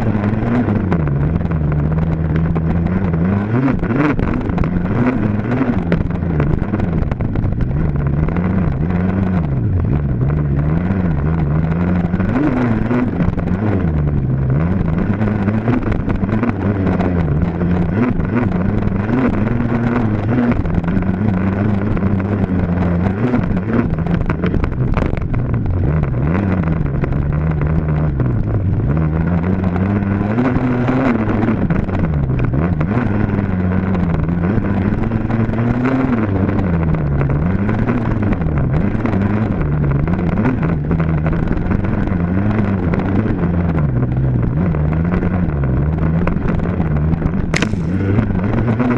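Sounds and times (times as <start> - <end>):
dirt bike engine revving: 47.5 - 48.9.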